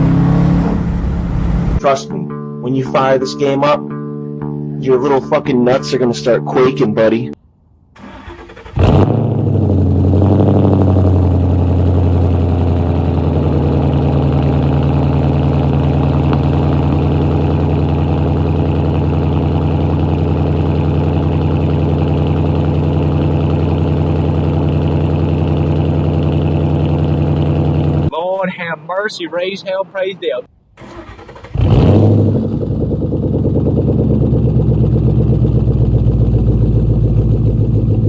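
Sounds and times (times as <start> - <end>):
car engine idling loudly: 8.8 - 28.1, 31.6 - 38.0.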